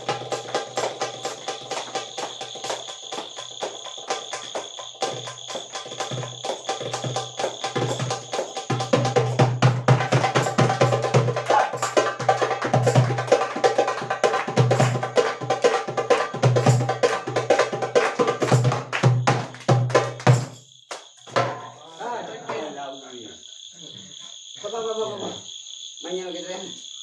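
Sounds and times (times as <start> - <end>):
bongo drums fast rhythm: 0.0 - 20.6, 21.3 - 21.8.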